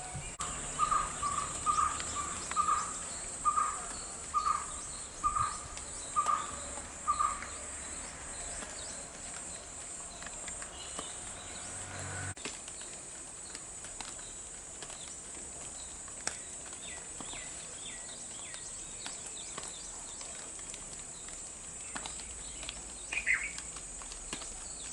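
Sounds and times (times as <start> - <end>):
bird chirps: 0.0 - 8.9
water dripping: 0.4 - 24.9.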